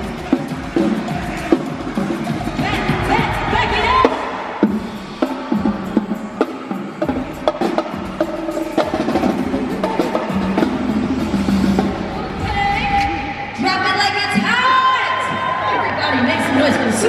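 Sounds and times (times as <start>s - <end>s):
drum and wood-block hits: 0.0s - 12.1s.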